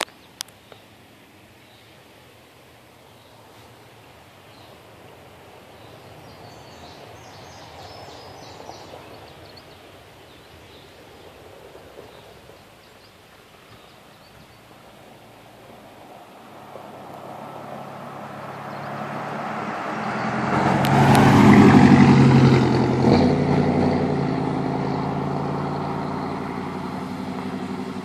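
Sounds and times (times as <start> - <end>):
outdoor background noise: 0.0 - 28.0.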